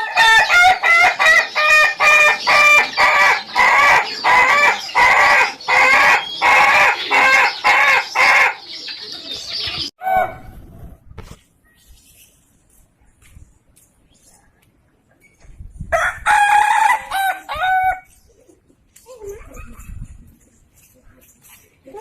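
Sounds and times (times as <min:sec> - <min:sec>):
rooster crowing in rapid notes: 0:15.9 - 0:18.1.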